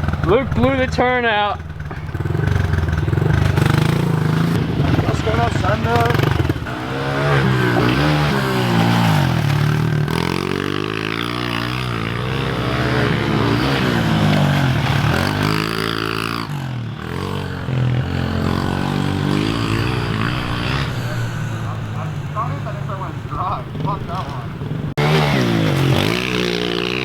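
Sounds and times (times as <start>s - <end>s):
pit bike engine revving: 0.0s - 27.0s.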